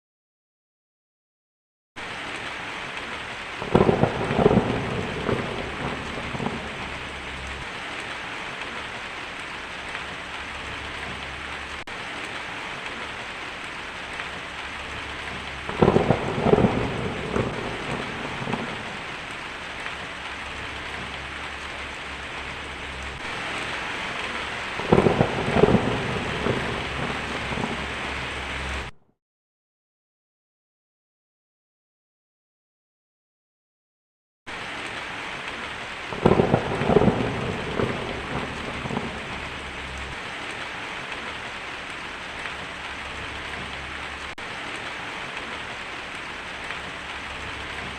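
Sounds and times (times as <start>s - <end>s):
heavy rain hissing: 2.0s - 28.9s, 34.5s - 47.9s
thunder rumbling: 3.2s - 11.9s, 12.7s - 28.9s, 36.1s - 41.5s.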